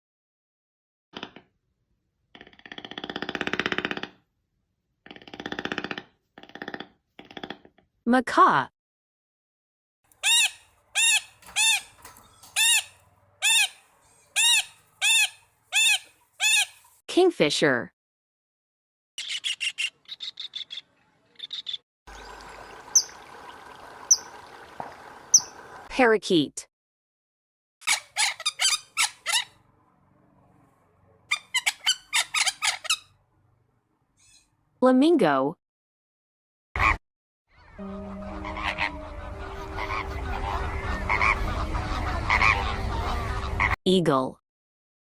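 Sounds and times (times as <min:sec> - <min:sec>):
macaw squawking: 0:10.2 - 0:13.8, 0:14.4 - 0:16.9, 0:31.3 - 0:33.1, 0:37.6 - 0:43.8
parakeet chirping: 0:25.3 - 0:25.6, 0:27.9 - 0:29.6.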